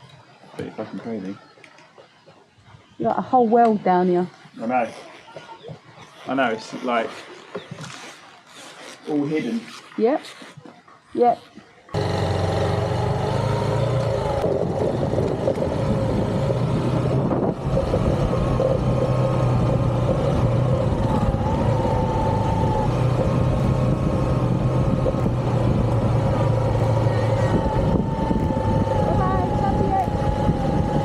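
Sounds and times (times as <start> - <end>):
motorcycle engine running: 12.0 - 31.0.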